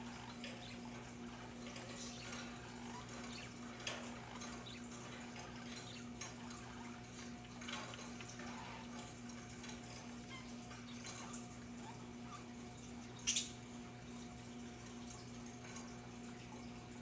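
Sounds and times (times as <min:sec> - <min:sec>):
budgerigar chirps and clicks: 0:13.2 - 0:13.6.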